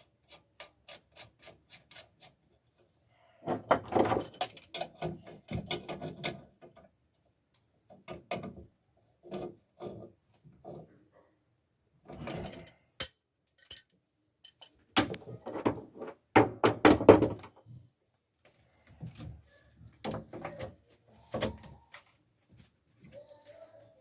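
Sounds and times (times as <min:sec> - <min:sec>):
tools knocking and clattering: 0:03.5 - 0:06.9, 0:12.3 - 0:17.6.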